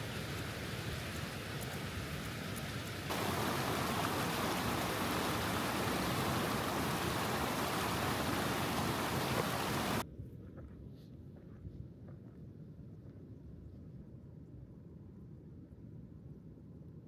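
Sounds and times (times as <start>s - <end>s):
waterfall rushing: 3.1s - 10.0s.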